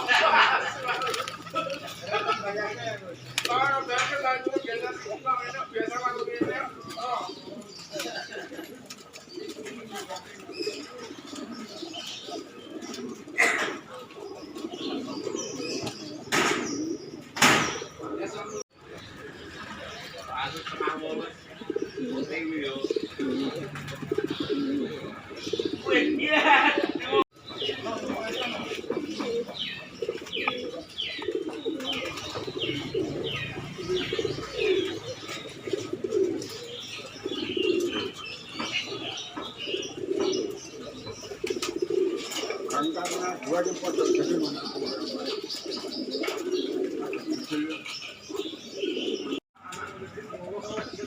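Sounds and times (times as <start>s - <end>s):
pigeons cooing: 0.0s - 51.0s
wings flapping: 0.8s - 1.8s.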